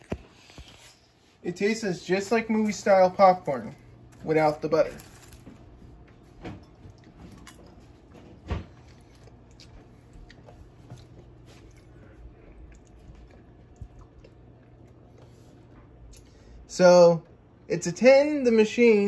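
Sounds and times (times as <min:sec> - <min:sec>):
person chewing popcorn: 0:02.7 - 0:16.6.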